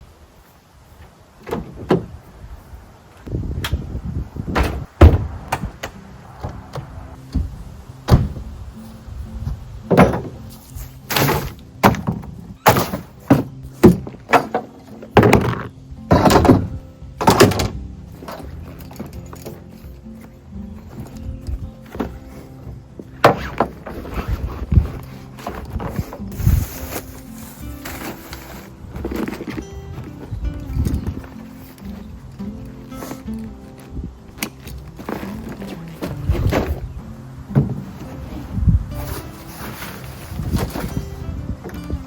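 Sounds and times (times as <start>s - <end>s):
faint background music: 4.1s - 42.0s
irregular knocks and thuds: 4.5s - 8.5s, 9.5s - 10.5s, 11.1s - 19.6s, 37.5s - 38.2s.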